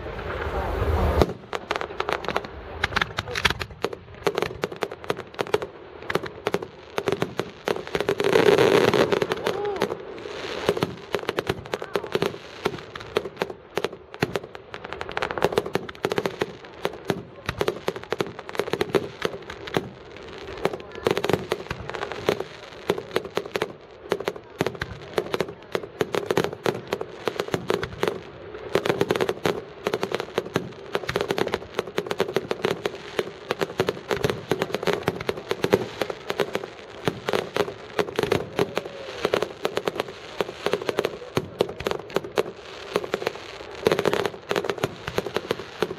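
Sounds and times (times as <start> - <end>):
fireworks cracking and banging: 0.0 - 45.9
voices in background: 8.3 - 10.8, 11.4 - 12.8, 20.0 - 29.9, 37.9 - 44.7.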